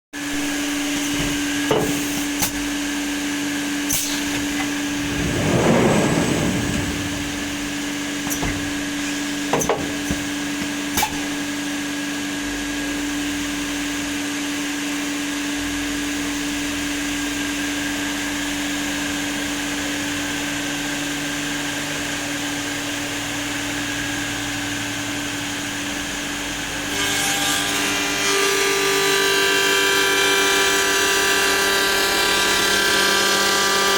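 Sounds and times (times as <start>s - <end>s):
machine humming: 0.2s - 11.9s
sharp clicks and knocks: 8.2s - 11.4s.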